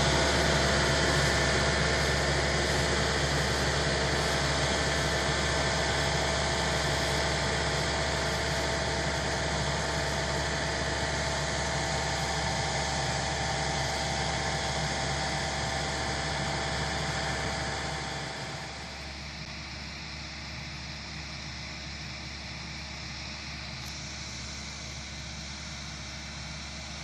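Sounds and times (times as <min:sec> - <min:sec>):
hydraulic winch humming: 0:00.0 - 0:19.1.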